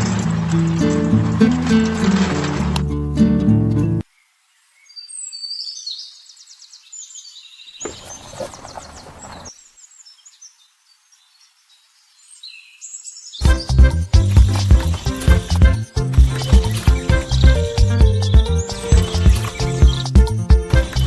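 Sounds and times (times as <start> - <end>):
music: 0.0 - 4.0, 13.4 - 21.0
small birds chirping: 4.1 - 21.0
brief rustling: 7.8 - 9.5.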